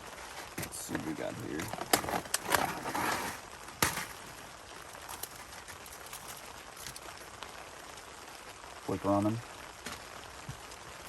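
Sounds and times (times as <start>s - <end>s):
handling rustle: 0.0s - 7.2s
rain hiss with light ticks: 0.0s - 11.0s.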